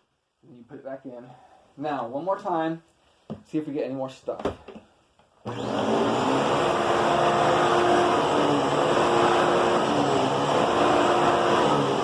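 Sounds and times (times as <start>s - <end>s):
vacuum cleaner running: 5.5s - 12.0s.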